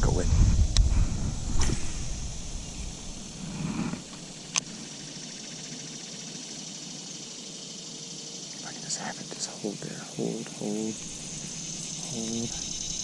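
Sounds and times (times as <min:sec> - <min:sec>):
microphone handling rumble: 0:00.0 - 0:04.3
insects buzzing: 0:00.0 - 0:13.0
sharp click: 0:04.1 - 0:04.8.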